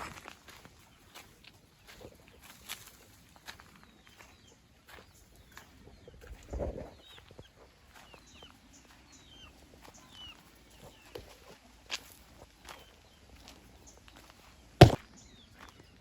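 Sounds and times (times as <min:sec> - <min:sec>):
chickens clucking: 0:00.4 - 0:13.0.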